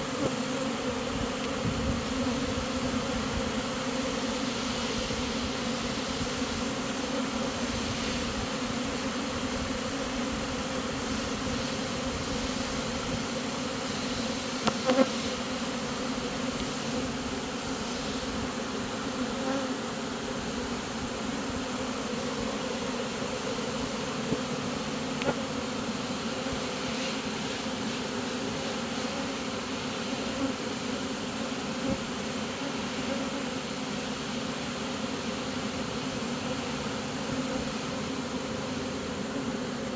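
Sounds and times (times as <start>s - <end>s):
bee swarm buzzing: 0.0s - 39.9s.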